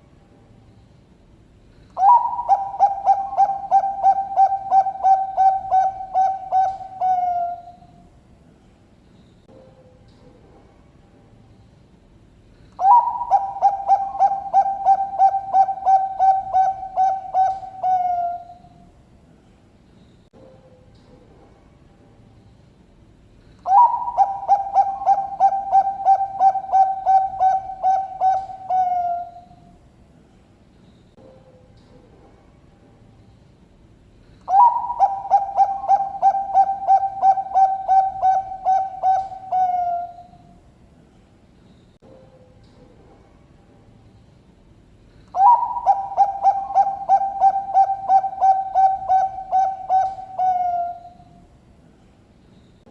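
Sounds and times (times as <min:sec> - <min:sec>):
dove cooing: 0:02.0 - 0:07.9, 0:12.8 - 0:18.7, 0:23.6 - 0:29.6, 0:34.4 - 0:40.4, 0:45.3 - 0:51.3.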